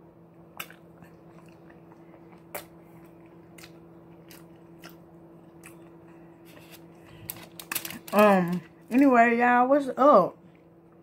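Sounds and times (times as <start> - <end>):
faint steady hum: 0.0 - 11.0
person chewing crunchy food: 0.5 - 8.2.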